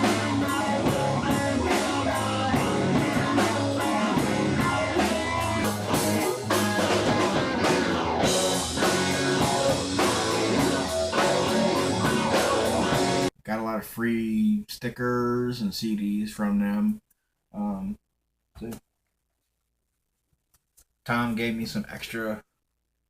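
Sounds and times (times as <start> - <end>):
rock music with guitar and drums: 0.0 - 13.3.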